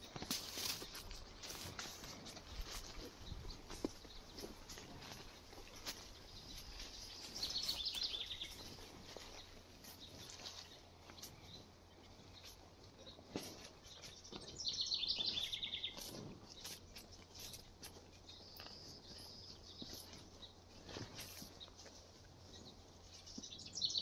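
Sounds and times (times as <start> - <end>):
cattle cropping grass: 0.0 - 11.6, 12.4 - 22.6
songbird trilled song: 3.2 - 13.2, 13.8 - 20.6, 22.6 - 24.0.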